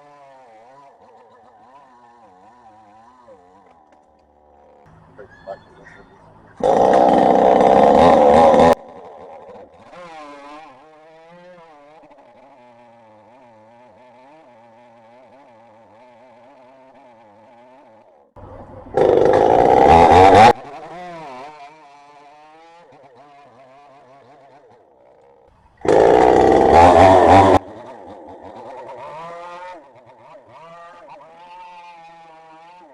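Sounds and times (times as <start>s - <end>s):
chainsaw at full throttle: 0.0s - 5.0s, 6.6s - 18.2s, 18.9s - 32.9s
chainsaw idling: 1.6s - 21.4s, 25.0s - 31.4s.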